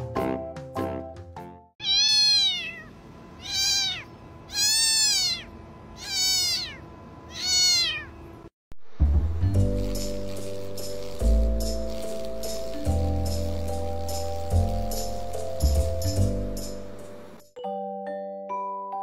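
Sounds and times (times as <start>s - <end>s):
kitten meowing: 1.8s - 8.2s
plucked background music: 9.0s - 17.5s.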